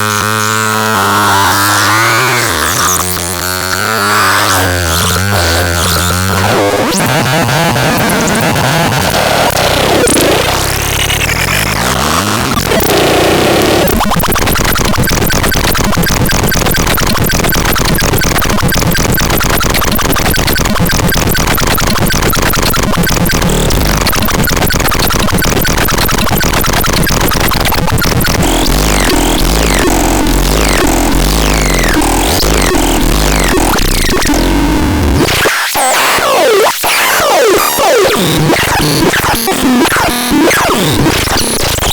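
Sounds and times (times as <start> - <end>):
fast stuttering electronic pulse: 0.0 - 41.9
deep electronic rumble: 22.8 - 35.2.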